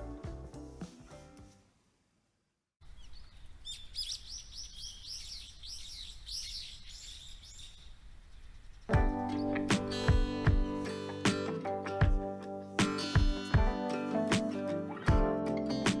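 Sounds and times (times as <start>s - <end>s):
background music: 0.0s - 1.6s, 9.0s - 16.0s
birds chirping: 2.8s - 12.1s.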